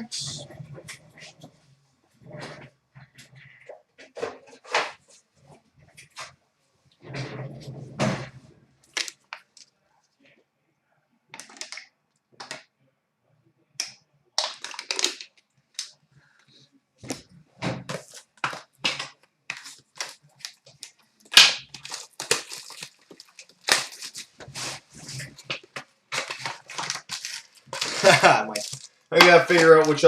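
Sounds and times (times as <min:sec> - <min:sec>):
foil wrappers crinkling and tearing: 0:14.4 - 0:15.9, 0:17.9 - 0:30.0
cards rustling: 0:17.9 - 0:30.0.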